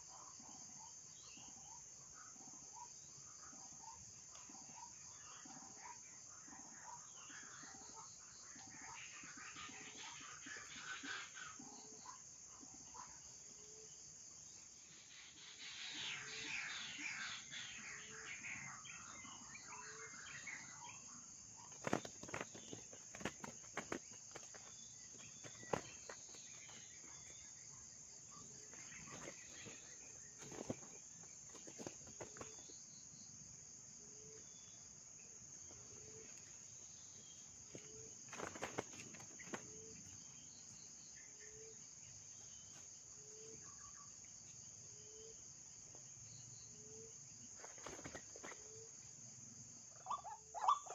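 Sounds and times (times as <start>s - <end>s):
crickets droning: 0.0s - 50.9s
rustles and clicks: 21.7s - 27.4s.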